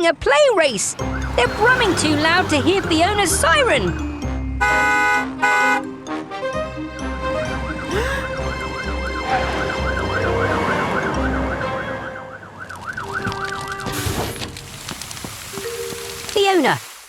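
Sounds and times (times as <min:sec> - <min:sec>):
cartoon siren wailing: 0:09.1 - 0:13.8.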